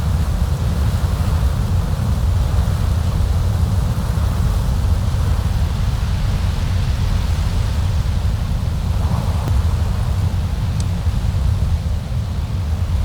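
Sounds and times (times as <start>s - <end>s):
storm wind blowing: 4.5s - 13.0s.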